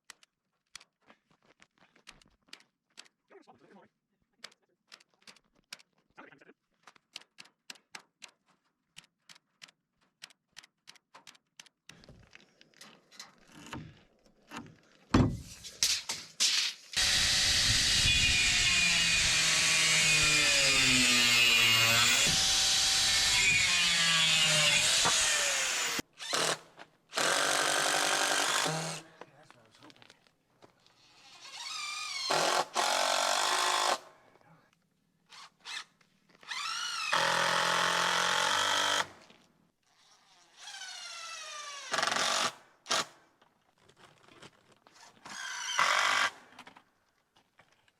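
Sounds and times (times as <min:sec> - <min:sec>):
power drill drilling into wood: 0:17.0 - 0:29.0, 0:31.2 - 0:34.0, 0:35.3 - 0:39.2, 0:40.5 - 0:43.1, 0:45.2 - 0:46.4.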